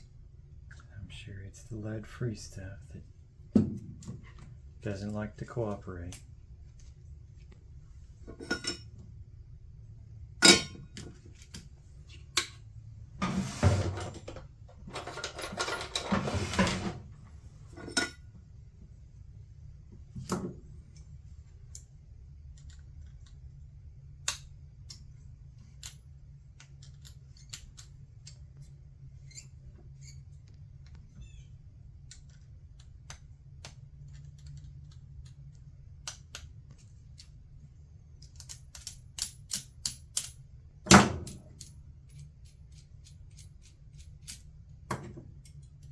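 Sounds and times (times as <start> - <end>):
steady low hum: 0.0 - 45.9
short scraping rustles: 13.2 - 14.1.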